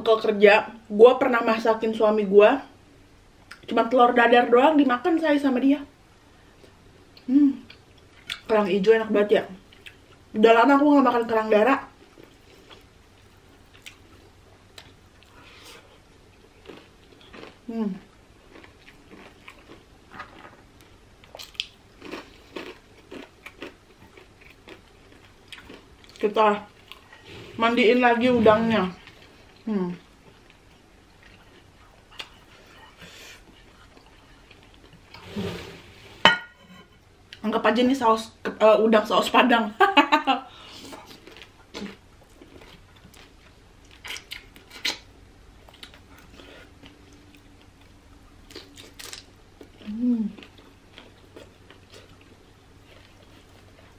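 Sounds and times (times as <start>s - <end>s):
person chewing shrimp: 12.2s - 26.2s, 30.2s - 35.2s, 41.0s - 53.9s
person chewing and sucking: 14.8s - 17.7s, 18.4s - 26.2s.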